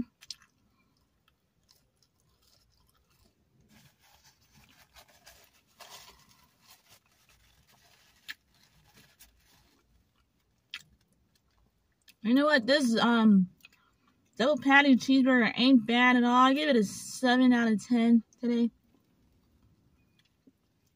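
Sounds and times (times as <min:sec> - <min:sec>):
close-up chewing and crunching: 0:00.0 - 0:12.2.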